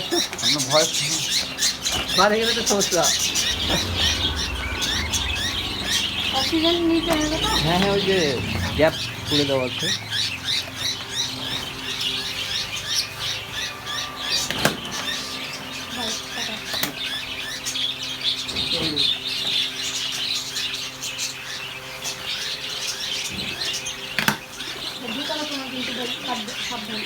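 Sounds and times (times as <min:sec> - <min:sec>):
budgerigars chattering: 0:00.0 - 0:27.0
low hum: 0:01.0 - 0:18.4.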